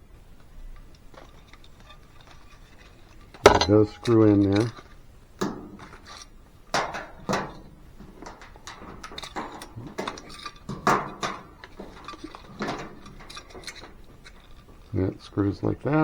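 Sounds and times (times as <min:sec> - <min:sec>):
metal parts clinking: 0:03.5 - 0:04.2.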